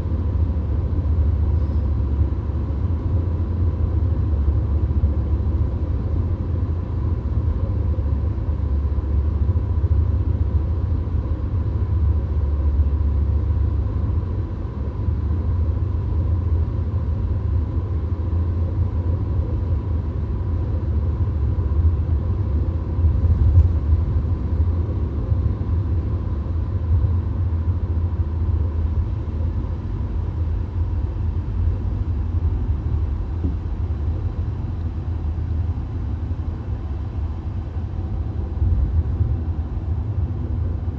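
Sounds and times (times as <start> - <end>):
car cabin road and engine rumble: 0.0 - 40.9.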